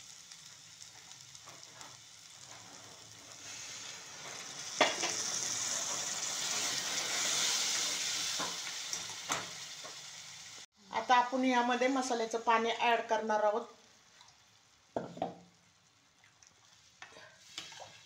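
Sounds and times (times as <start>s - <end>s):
loud hissing sizzle: 0.0s - 13.9s
paste frying in oil: 0.0s - 18.0s.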